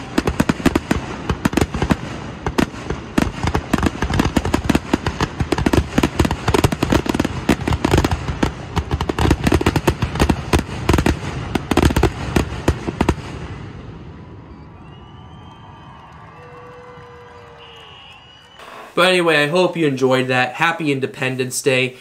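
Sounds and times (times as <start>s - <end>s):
fireworks bangs: 0.0s - 20.5s
low fireworks rumble: 0.0s - 20.6s.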